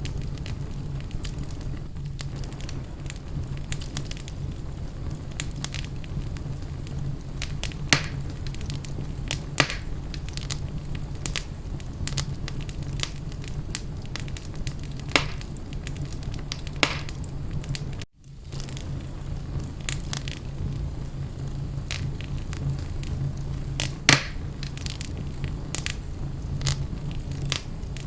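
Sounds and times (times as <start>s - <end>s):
fire popping: 0.0s - 28.0s
low fire rumble: 0.0s - 28.0s
wood fire crackling: 0.0s - 28.0s.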